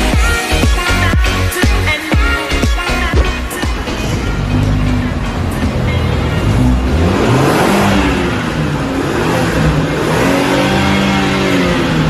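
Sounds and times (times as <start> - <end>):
car engine revving: 2.8 - 12.0.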